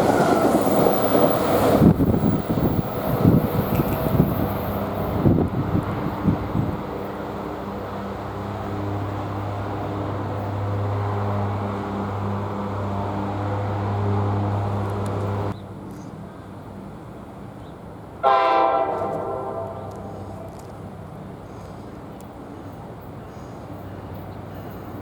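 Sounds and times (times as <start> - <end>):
train running hum: 0.0 - 25.0
train horn blast: 18.2 - 20.6.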